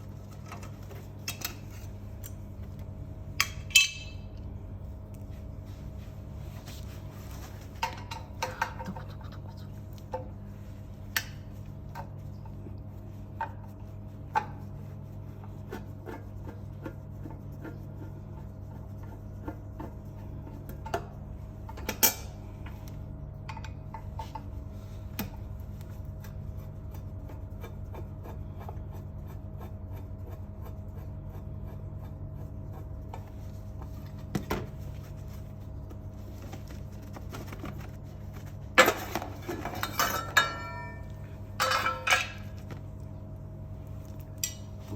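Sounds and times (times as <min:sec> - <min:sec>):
steady low hum: 0:00.0 - 0:44.9
metal tools clinking and scraping: 0:03.4 - 0:04.3, 0:38.8 - 0:42.6.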